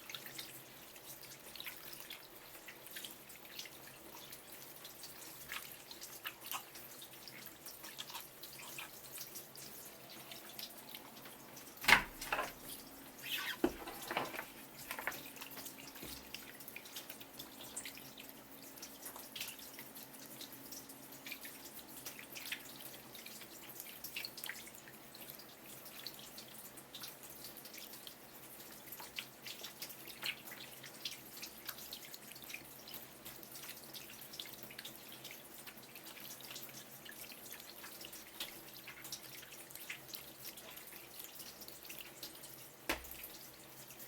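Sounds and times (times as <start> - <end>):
water dripping in sink: 0.0 - 44.0.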